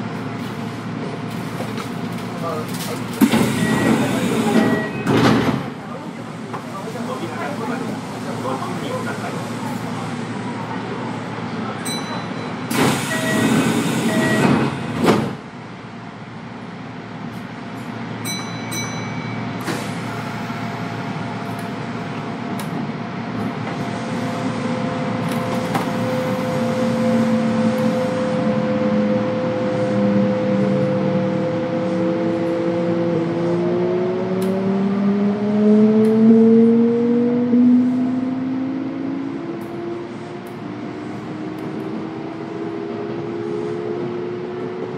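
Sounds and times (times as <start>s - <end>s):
train doors closing with air rush: 0.1s - 15.6s, 19.4s - 28.5s.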